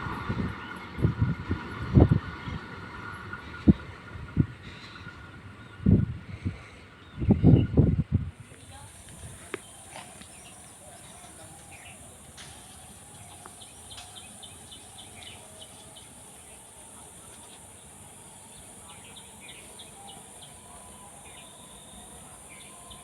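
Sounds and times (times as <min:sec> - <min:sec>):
high insect hiss: 0:08.4 - 0:23.0
small birds chirping: 0:08.4 - 0:23.0.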